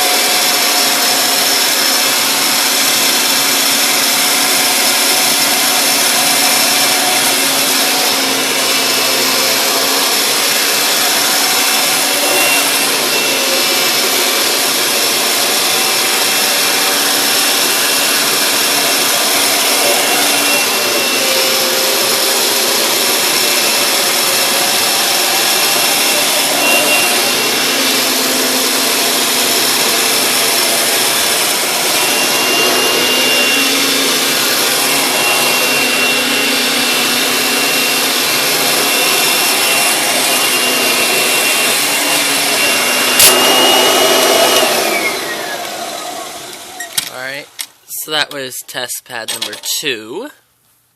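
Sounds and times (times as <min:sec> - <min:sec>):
upright vacuum cleaner running: 0:00.0 - 0:47.6.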